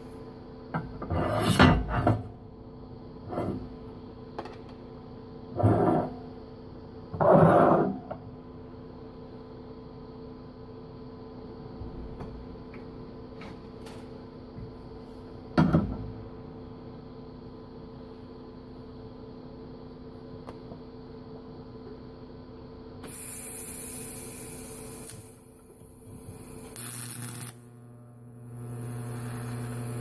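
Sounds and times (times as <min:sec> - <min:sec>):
electrical hum of welder: 0:00.0 - 0:07.2, 0:16.6 - 0:30.0.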